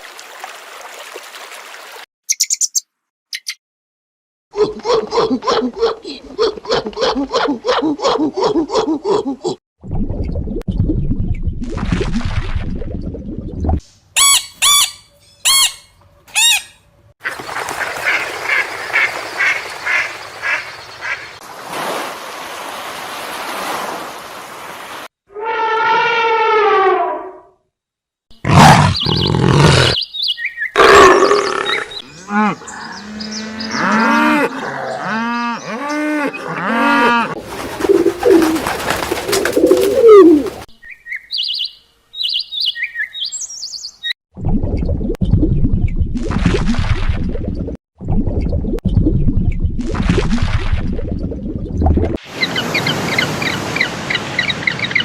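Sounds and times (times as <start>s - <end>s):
bird chirps: 2.3s - 3.6s, 28.9s - 34.0s, 40.7s - 44.2s.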